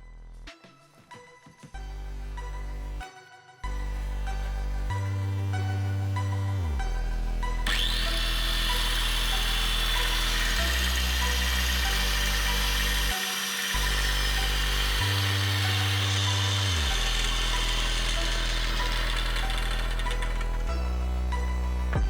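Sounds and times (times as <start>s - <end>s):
background music with bass line: 0.0s - 22.0s
electric hand grinder running: 7.6s - 21.6s.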